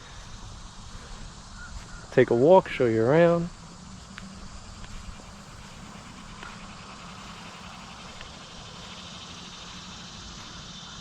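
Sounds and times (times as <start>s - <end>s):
wind rumbling on microphone: 0.0s - 9.9s
insects chirring: 0.0s - 11.0s.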